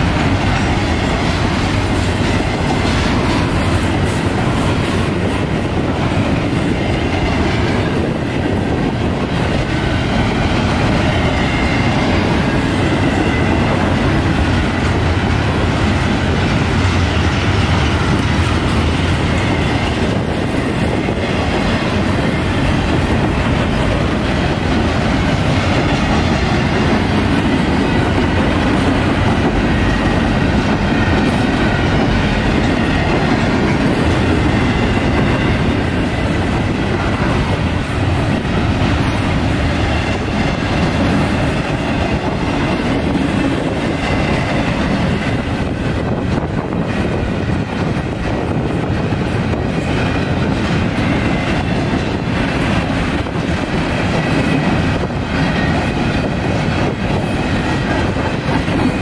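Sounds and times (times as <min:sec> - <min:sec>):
freight train wheels on track: 0:00.0 - 0:59.0.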